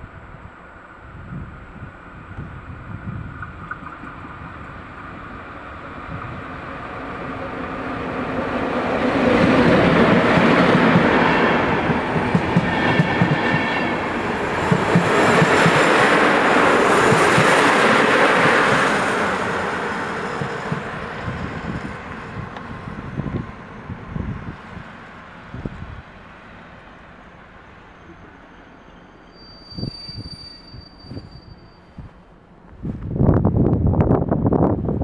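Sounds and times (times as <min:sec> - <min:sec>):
train wheels clickety-clack: 0:08.9 - 0:22.7.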